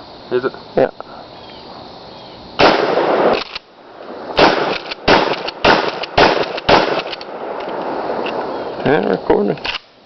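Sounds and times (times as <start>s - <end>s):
gunshots with echo: 2.6s - 3.4s, 4.4s - 7.6s.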